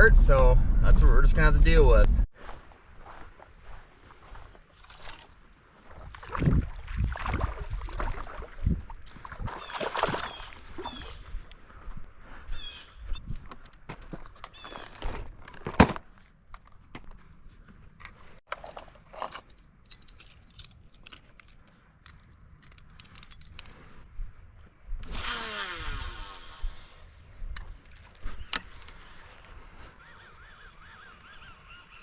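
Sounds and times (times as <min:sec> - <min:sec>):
gear clinking and rattling: 0:18.0 - 0:24.0.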